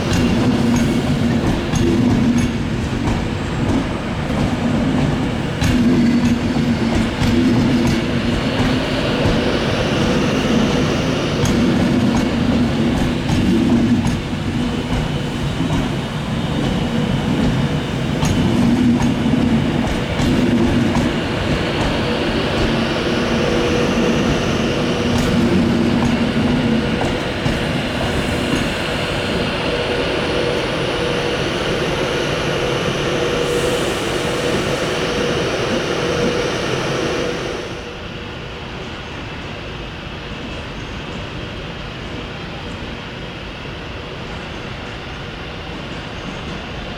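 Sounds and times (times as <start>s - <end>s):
electric train hum: 0.0s - 46.9s
high hiss: 20.8s - 38.0s.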